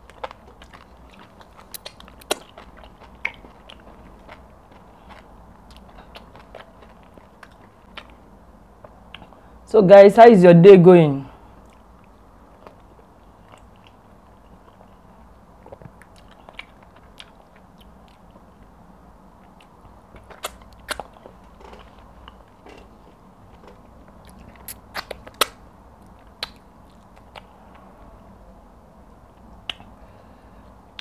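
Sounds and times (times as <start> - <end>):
person chewing food: 0.0 - 9.5, 11.5 - 27.9
faint steady hum: 0.0 - 31.0
wet mouth clicks and smacks: 1.4 - 4.4, 24.3 - 27.5, 29.6 - 29.9.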